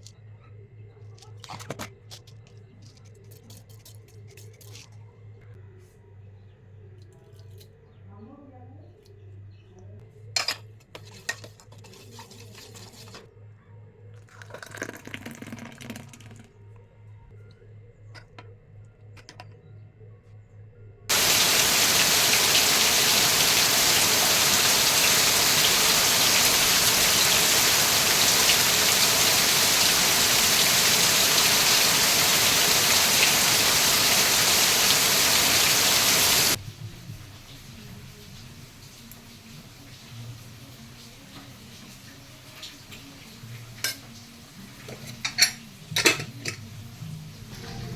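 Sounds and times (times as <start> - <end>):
water running from tap into sink: 21.1 - 36.6.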